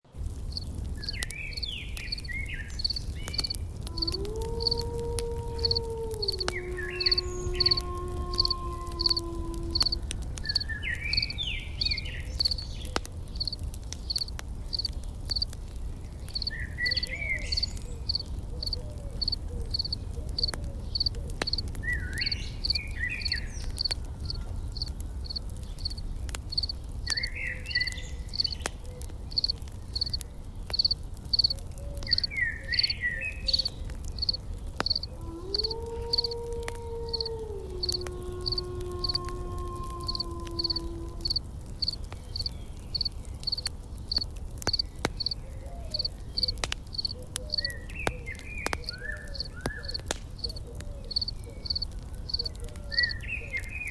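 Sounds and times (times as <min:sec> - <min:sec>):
bird song: 0:00.5 - 0:04.8, 0:05.5 - 0:35.2, 0:44.7 - 0:53.9
insect chirping: 0:00.5 - 0:04.8, 0:05.5 - 0:12.6, 0:13.4 - 0:15.5, 0:16.3 - 0:17.0, 0:17.6 - 0:21.6, 0:22.2 - 0:27.3, 0:28.3 - 0:28.6, 0:29.3 - 0:31.5, 0:32.1 - 0:36.4, 0:37.1 - 0:39.2, 0:40.0 - 0:45.4, 0:46.0 - 0:47.7, 0:49.3 - 0:52.5
faint clicks: 0:02.0 - 0:11.2, 0:11.8 - 0:53.8.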